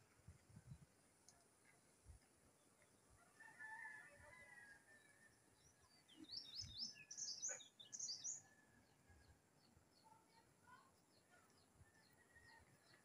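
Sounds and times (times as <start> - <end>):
rooster crowing: 3.4 - 4.9
small bird chirping: 5.7 - 8.6.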